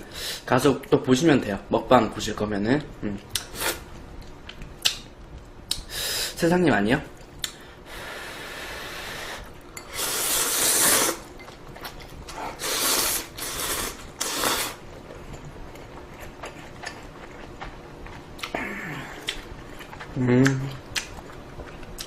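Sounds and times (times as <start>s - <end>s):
noodles being slurped: 9.3s - 11.3s.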